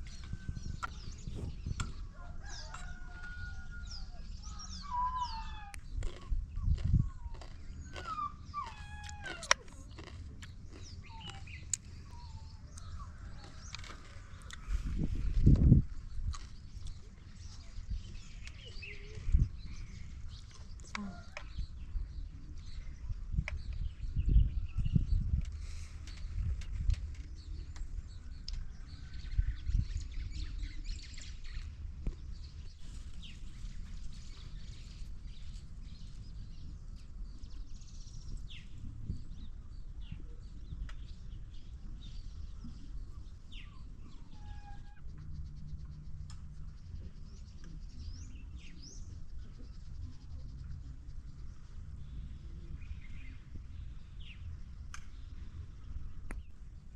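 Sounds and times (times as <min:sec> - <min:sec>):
birds chirping: 0:00.0 - 0:56.9
faint bird chirps: 0:42.2 - 0:54.5
steady low rumble: 0:45.0 - 0:56.9.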